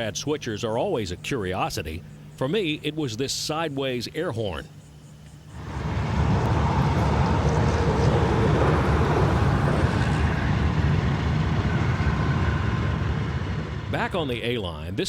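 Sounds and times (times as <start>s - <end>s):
diesel locomotive rumbling: 5.5s - 15.0s
locomotive hiss: 5.6s - 15.0s.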